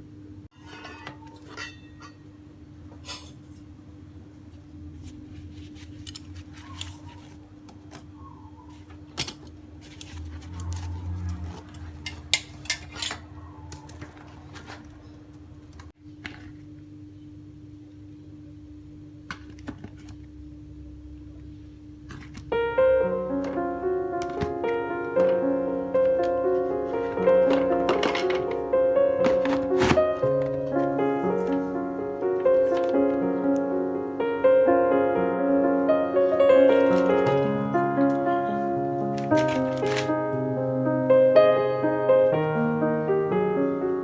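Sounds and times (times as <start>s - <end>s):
dishes and containers clinking: 0.5s - 2.2s, 9.2s - 15.0s, 26.0s - 31.7s, 36.6s - 38.2s, 39.1s - 40.2s.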